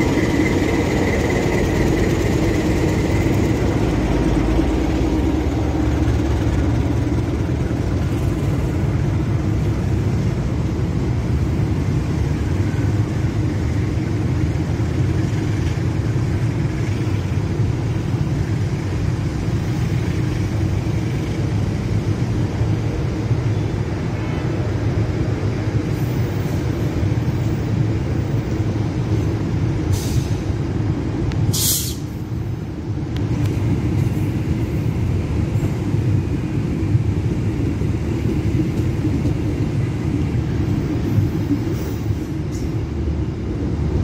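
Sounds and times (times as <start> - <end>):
locomotive engine running: 0.0 - 25.9
train coaches rumbling: 0.0 - 44.0.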